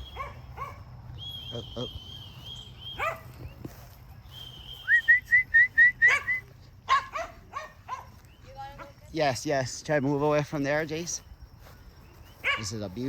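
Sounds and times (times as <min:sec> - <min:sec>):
dog whining yelps: 0:00.0 - 0:00.8, 0:02.9 - 0:03.3, 0:06.0 - 0:08.0
person whistling: 0:04.4 - 0:06.4.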